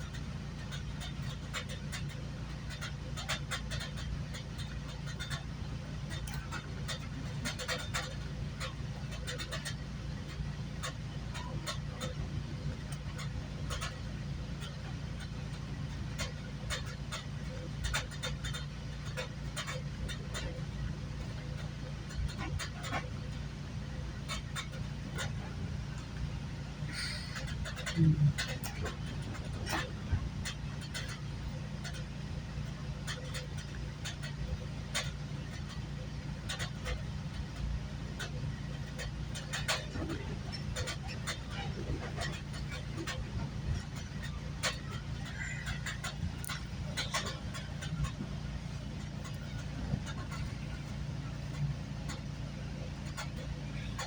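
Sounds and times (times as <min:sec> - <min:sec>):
sharp clicks and knocks: 0:00.0 - 0:54.0
train rumbling: 0:00.0 - 0:54.0.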